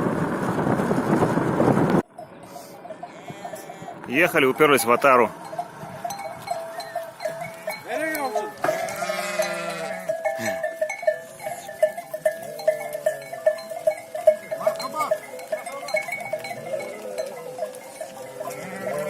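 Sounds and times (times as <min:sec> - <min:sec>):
sheep bells clanking: 0:02.1 - 0:19.0
sheep bleating: 0:02.5 - 0:04.4, 0:07.0 - 0:10.8, 0:14.6 - 0:19.0.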